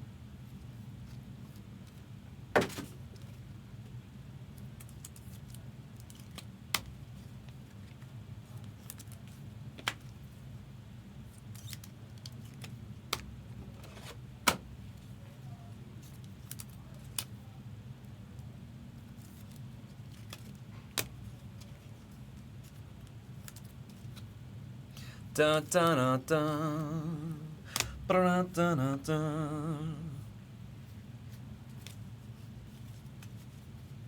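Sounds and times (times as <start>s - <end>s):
steady low hum: 23.9s - 34.0s.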